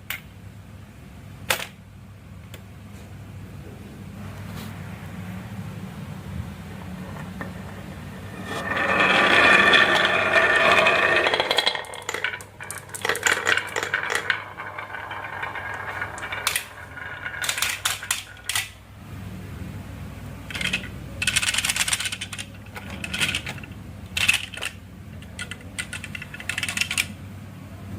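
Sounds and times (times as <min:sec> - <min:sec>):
low hum: 0:06.4 - 0:19.0
marbles rattling down wooden run: 0:07.2 - 0:18.8, 0:20.5 - 0:27.1.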